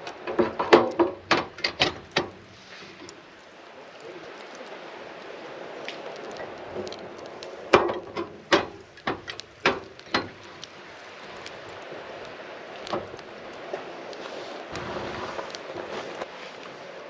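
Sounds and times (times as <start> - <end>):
sharp knocks: 7.7 - 10.4.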